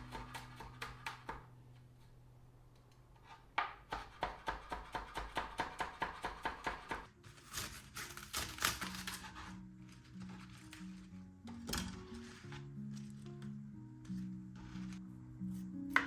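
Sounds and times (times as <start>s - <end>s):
soft background music: 0.0s - 2.7s, 3.8s - 16.0s
knife chopping on cutting board: 0.1s - 1.4s, 3.6s - 9.2s.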